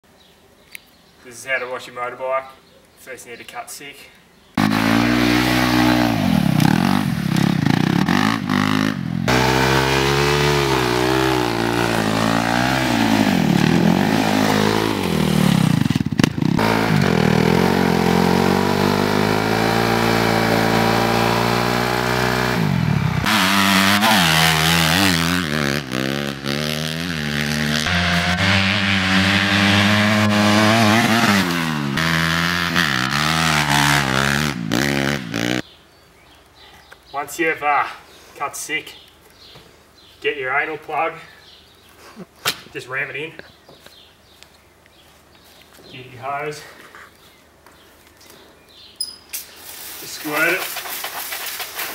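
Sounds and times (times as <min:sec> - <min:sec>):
motorcycle engine revving: 0:04.6 - 0:35.7.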